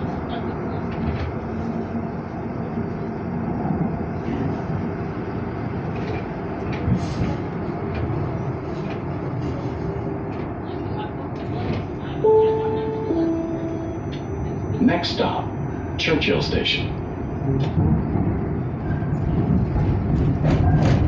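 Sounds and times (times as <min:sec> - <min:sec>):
train wheels rumbling on track: 0:00.0 - 0:12.8, 0:17.2 - 0:21.0.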